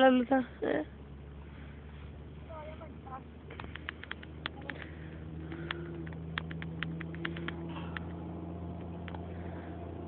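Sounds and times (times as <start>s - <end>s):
vehicle engine idling: 0.0s - 10.0s
sharp ticks and clicks: 3.6s - 4.9s, 5.5s - 8.1s.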